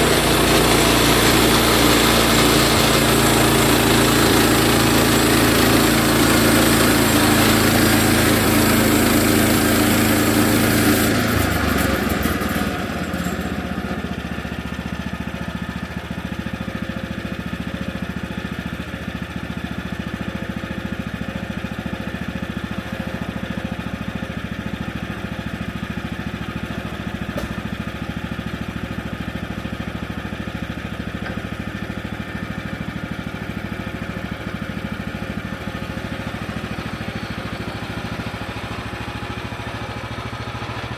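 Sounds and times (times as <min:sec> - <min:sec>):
saw blade cutting: 0:00.0 - 0:14.0
gas engine running: 0:00.0 - 0:40.9.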